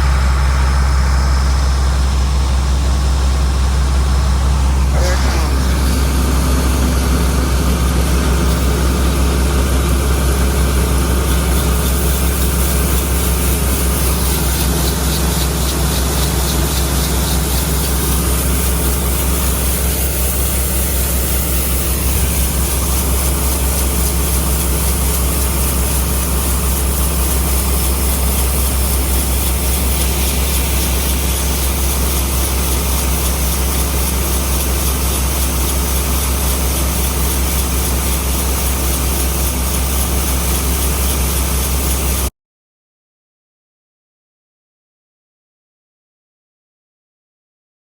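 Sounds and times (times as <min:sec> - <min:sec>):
large diesel engine droning: 0:00.0 - 0:26.6.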